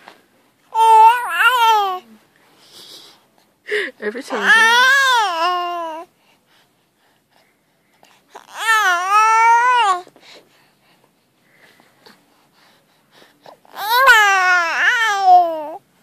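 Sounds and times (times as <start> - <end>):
baby crying: 0.8 - 2.0, 4.4 - 6.1, 8.4 - 10.0, 13.7 - 15.8.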